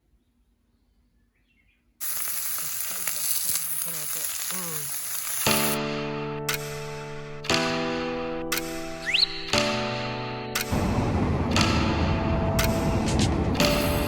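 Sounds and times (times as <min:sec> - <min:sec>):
steak sizzling in a pan: 0:02.0 - 0:05.8
music: 0:05.4 - 0:14.0.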